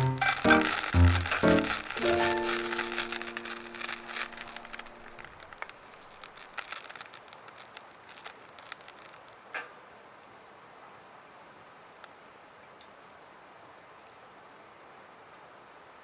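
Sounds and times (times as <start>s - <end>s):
held musical notes: 0.0s - 5.2s
wood fire crackling: 0.0s - 9.5s.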